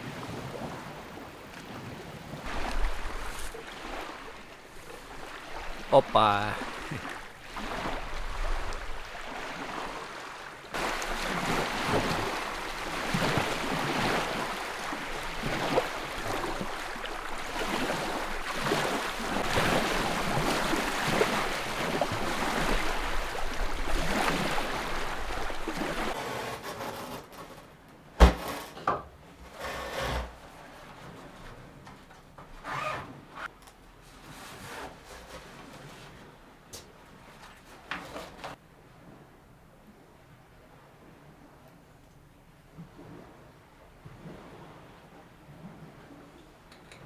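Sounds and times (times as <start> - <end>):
scraping and rustling: 2.5 - 5.2, 26.1 - 36.4, 37.3 - 38.6.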